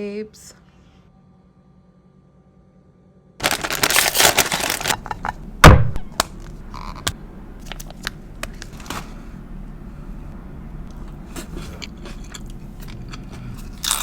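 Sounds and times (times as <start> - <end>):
packaging crinkling and rustling: 3.4 - 5.4, 6.2 - 9.2
loud thud: 5.6 - 6.2.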